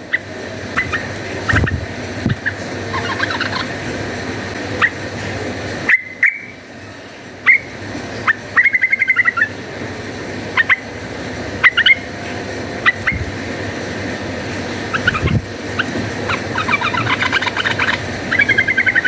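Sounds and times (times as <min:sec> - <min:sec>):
bird chirping: 0:00.1 - 0:03.7, 0:12.8 - 0:13.3, 0:14.9 - 0:19.0.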